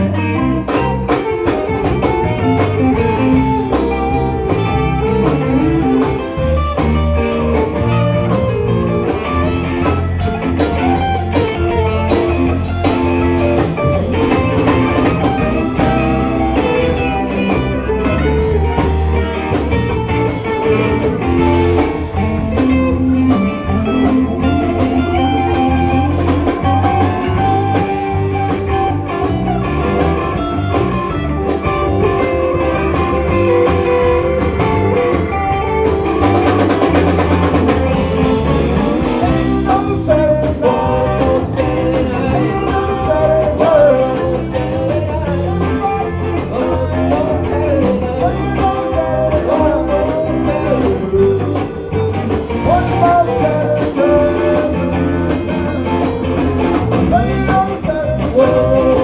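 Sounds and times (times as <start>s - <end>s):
bass guitar: 0.0s - 59.0s
drum kit: 0.0s - 59.0s
electric guitar lines: 0.0s - 59.0s.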